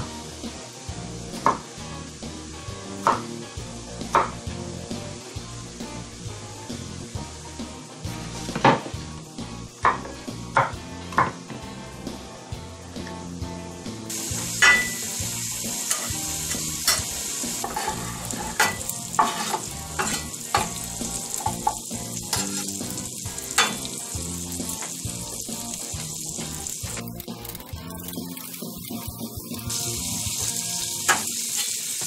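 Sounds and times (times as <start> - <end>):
garlic and bacon sizzling in skillet: 0.0 - 32.0
knife tapping and scraping pan: 15.9 - 16.1, 16.8 - 20.8, 21.4 - 22.7.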